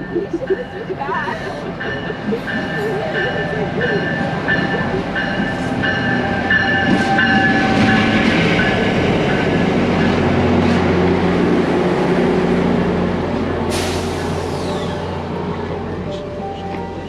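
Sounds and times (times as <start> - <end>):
high electronic beep: 0.0 - 5.7
train hum and rumble: 0.0 - 17.0.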